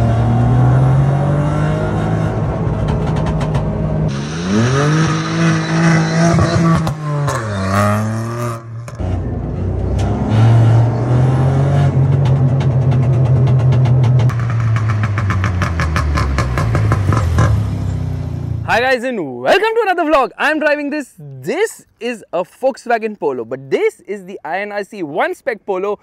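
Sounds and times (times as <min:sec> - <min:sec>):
car engine accelerating: 0:00.0 - 0:18.7.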